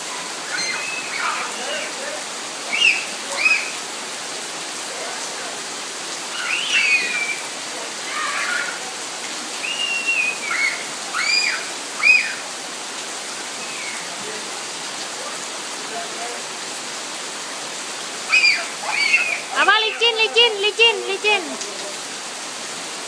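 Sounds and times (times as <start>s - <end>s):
children squealing and shouting: 0.0s - 4.1s, 6.2s - 12.6s, 13.3s - 14.2s, 18.0s - 21.7s
steady rain falling: 0.0s - 23.0s.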